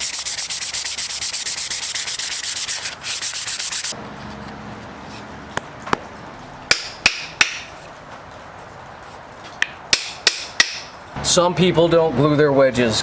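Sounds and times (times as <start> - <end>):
sanding: 0.0 - 4.0.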